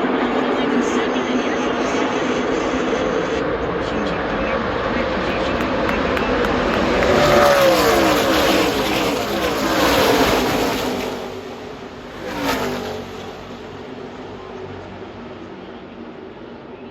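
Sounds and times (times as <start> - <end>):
race trucks passing at speed: 4.7 - 13.8.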